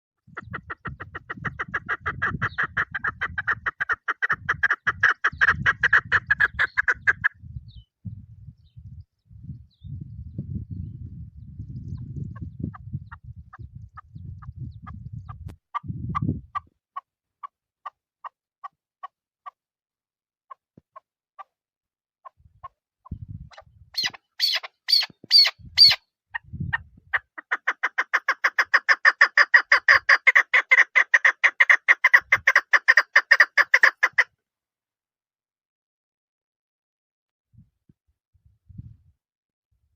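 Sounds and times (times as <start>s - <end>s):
partridge clucking calls: 0.2s - 7.4s, 12.3s - 19.6s, 22.2s - 34.3s.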